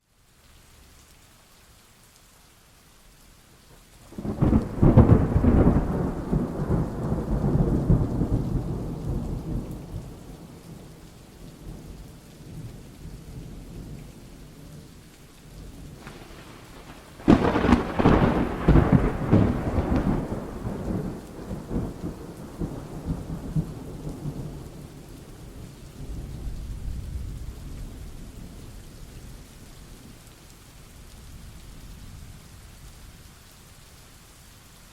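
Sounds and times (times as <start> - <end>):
steady rain: 0.0 - 34.9
thunderclaps rumbling: 4.1 - 14.2, 15.6 - 29.0.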